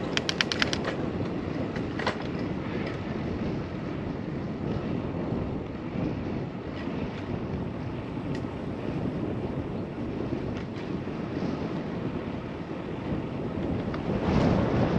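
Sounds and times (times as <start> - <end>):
sharp clicks: 0.0 - 0.9
wind noise on microphone: 0.0 - 14.9.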